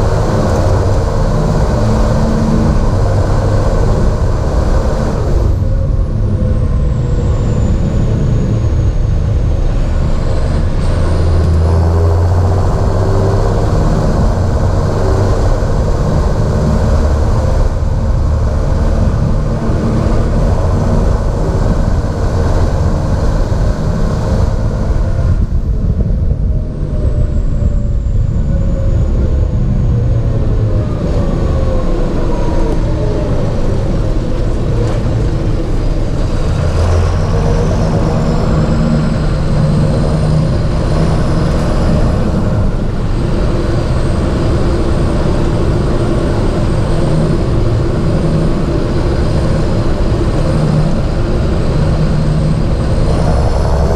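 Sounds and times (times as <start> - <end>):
high gliding whine: 0.0 - 53.9
tractor diesel engine running: 0.0 - 53.9.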